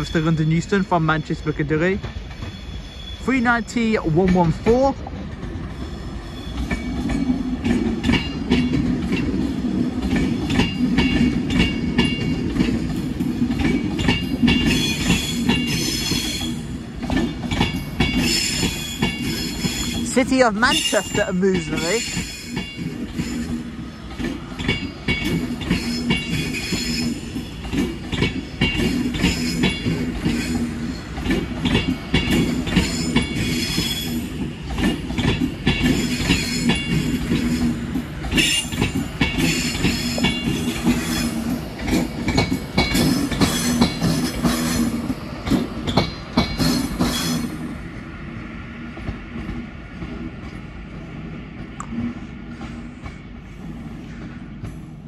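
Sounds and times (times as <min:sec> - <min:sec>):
train wheels clattering over joints: 0:00.0 - 0:47.8
high-pitched wheel squeal: 0:02.4 - 0:03.6.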